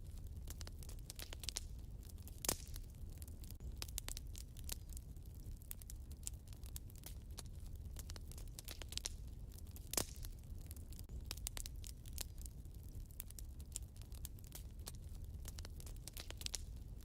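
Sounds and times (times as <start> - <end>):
low fire rumble: 0.0 - 17.0
wood fire crackling: 0.0 - 17.0.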